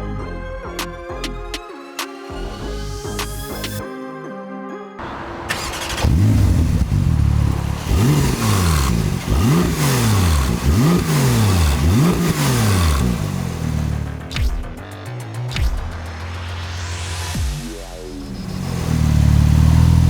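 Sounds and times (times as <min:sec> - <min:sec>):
sports car engine revving: 0:05.5 - 0:14.8, 0:17.3 - 0:20.0.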